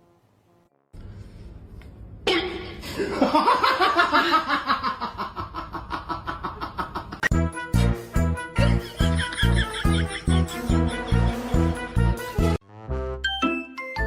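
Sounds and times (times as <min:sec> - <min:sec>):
person laughing hard: 0:08.6 - 0:11.8.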